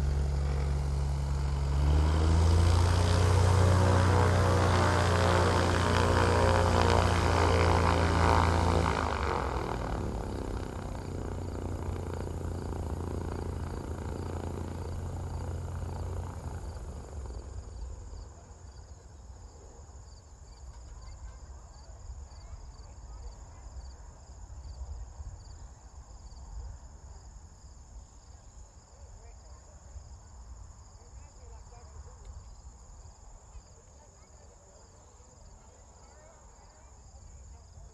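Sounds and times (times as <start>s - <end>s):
propeller airplane engine: 0.0s - 20.0s.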